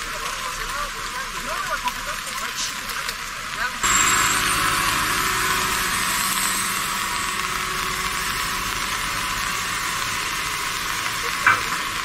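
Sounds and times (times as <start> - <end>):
heavy rain hissing: 0.0 - 12.0
engine running low: 3.8 - 12.0.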